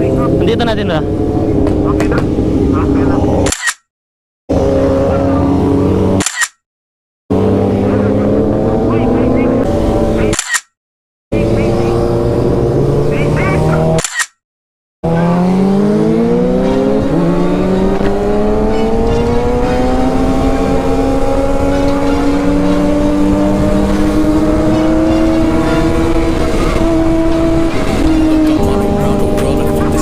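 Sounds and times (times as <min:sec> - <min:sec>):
motorcycle engine accelerating: 0:00.0 - 0:03.5, 0:04.5 - 0:06.5, 0:07.3 - 0:10.6, 0:11.3 - 0:14.3, 0:15.0 - 0:30.0
wind and road noise: 0:00.0 - 0:03.8, 0:04.5 - 0:06.6, 0:07.3 - 0:10.7, 0:11.3 - 0:14.4, 0:15.0 - 0:30.0.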